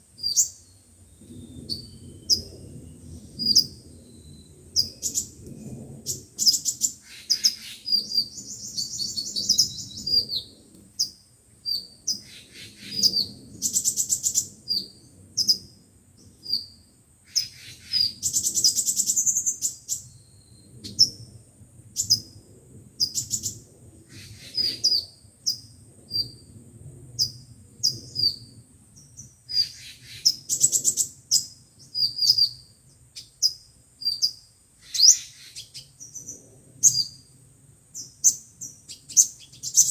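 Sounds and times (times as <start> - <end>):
sunbirds chirping: 0.0 - 26.6, 27.2 - 39.9
buzzy rattling bird trills: 6.0 - 15.6, 17.3 - 20.2.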